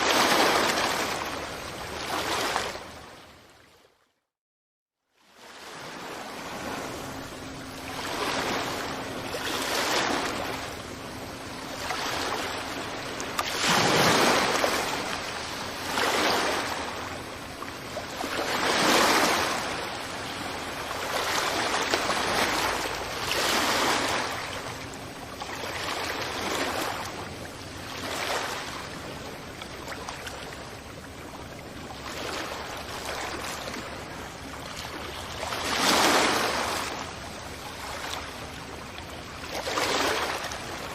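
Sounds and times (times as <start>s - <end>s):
sea waves breaking on beach: 0.0s - 3.7s, 5.2s - 40.9s.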